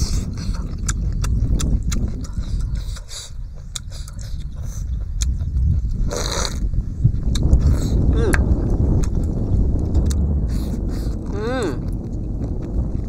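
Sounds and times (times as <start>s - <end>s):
wet mouth clicks and smacks: 0.0s - 6.6s, 7.3s - 8.4s
man chewing and sucking: 0.0s - 13.0s
steady low rumble: 0.0s - 13.0s
short slurps: 6.1s - 6.6s.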